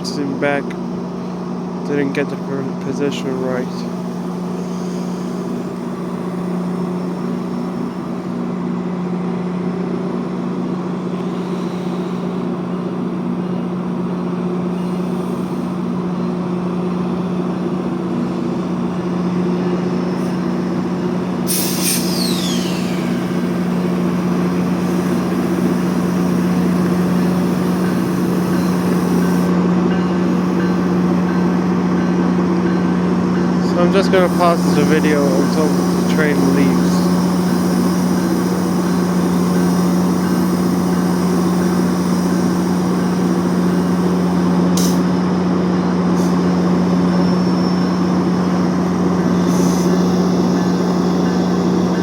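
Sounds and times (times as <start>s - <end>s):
locomotive diesel engine hum: 0.0s - 52.0s
hiss with falling whistle tone: 21.5s - 29.5s.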